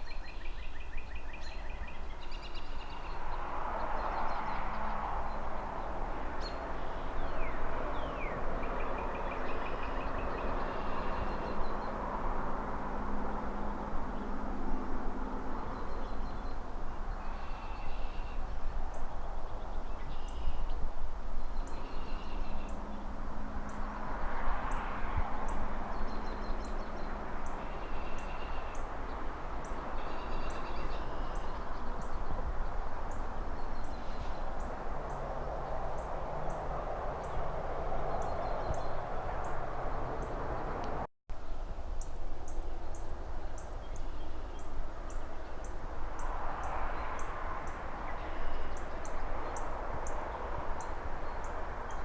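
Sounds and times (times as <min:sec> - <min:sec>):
distant city traffic: 0:00.0 - 0:52.0
birds chirping: 0:21.5 - 0:40.8.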